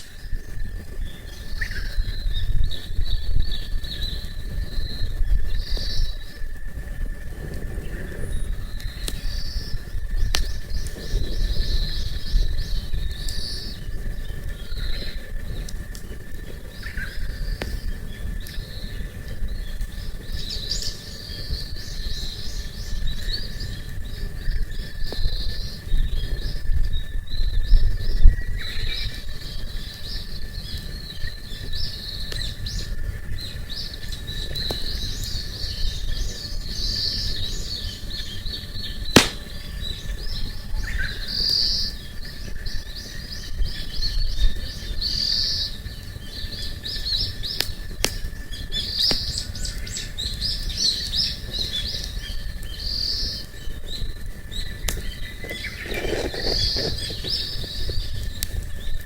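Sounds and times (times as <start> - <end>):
birds chirping and singing: 0.0 - 6.4
campfire crackles: 0.0 - 59.0
wind rumble: 0.0 - 59.0.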